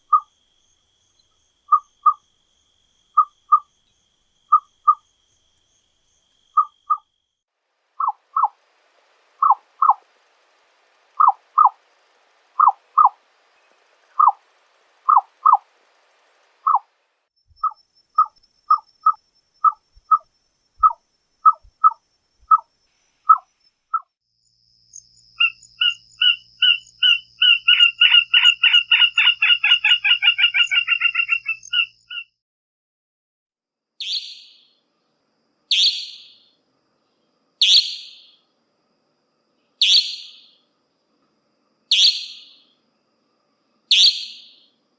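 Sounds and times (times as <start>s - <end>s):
nightjar knocking calls: 1.7s - 2.2s, 3.2s - 3.7s, 4.5s - 5.0s, 6.6s - 7.1s, 8.0s - 8.6s, 9.4s - 10.1s, 11.1s - 16.9s, 17.6s - 22.7s, 23.3s - 24.1s, 25.4s - 32.3s, 34.0s - 34.7s, 35.7s - 36.4s, 37.6s - 38.4s, 39.8s - 40.6s, 41.9s - 42.6s, 43.9s - 44.7s
nightjar fast rattle: 7.7s - 20.2s
nightjar sharp falling calls: 8.0s - 8.6s, 9.4s - 10.1s, 11.1s - 16.9s, 25.4s - 32.3s, 34.0s - 34.7s, 35.7s - 36.5s, 37.6s - 38.4s, 39.8s - 40.6s, 41.9s - 42.6s, 43.9s - 44.7s.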